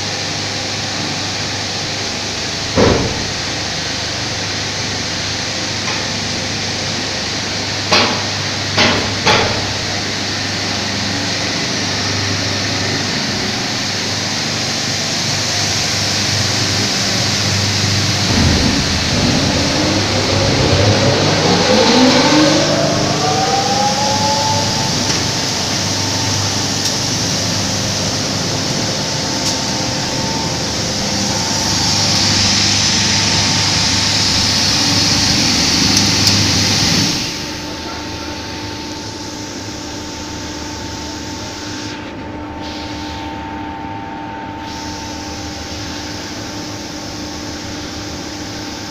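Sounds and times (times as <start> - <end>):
steady noisy hum: 0.0 - 48.9
machine motor running: 15.6 - 37.9
motor whine rising in pitch: 16.2 - 37.5
sharp knocks: 18.2 - 21.8.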